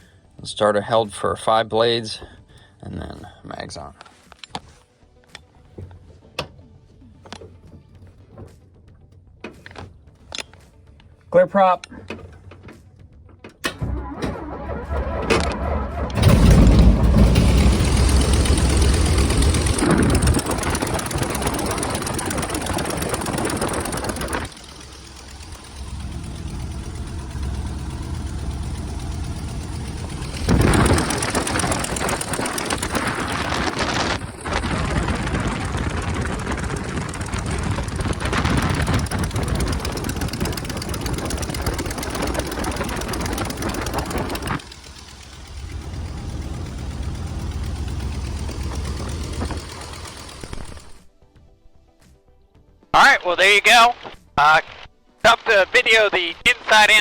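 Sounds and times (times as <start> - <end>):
radial aircraft engine running: 13.6 - 51.1.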